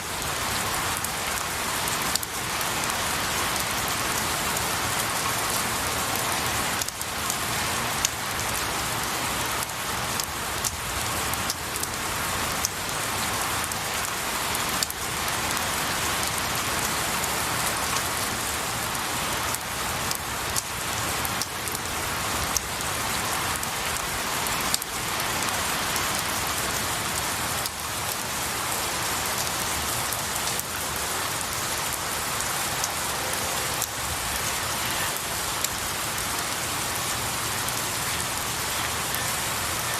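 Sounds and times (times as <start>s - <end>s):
rain falling on trees: 0.0s - 39.9s
raindrop ticks: 0.9s - 4.3s, 4.9s - 7.4s, 9.6s - 12.0s, 14.7s - 15.6s, 19.5s - 22.7s, 23.8s - 26.6s, 27.6s - 28.2s, 33.7s - 36.5s.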